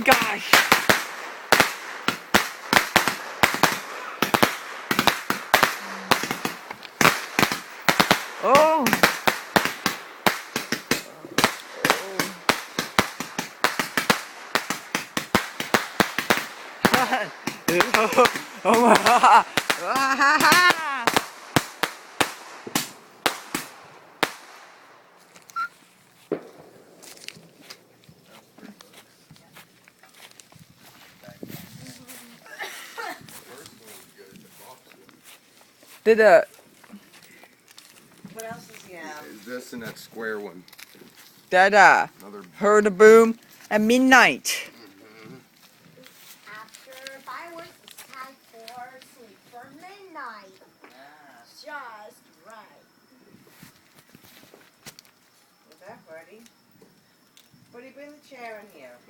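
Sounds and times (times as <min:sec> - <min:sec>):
fireworks bangs: 0:00.0 - 0:29.5.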